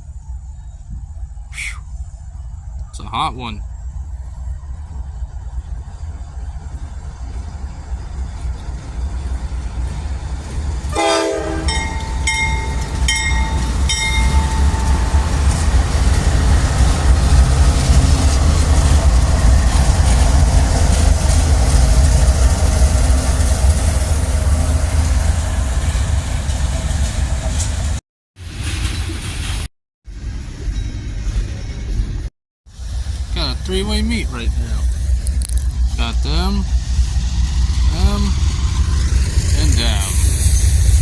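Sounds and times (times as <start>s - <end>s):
train rumbling past: 0.0s - 41.0s
train horn blast: 10.9s - 12.0s
locomotive bell ringing: 11.0s - 15.8s.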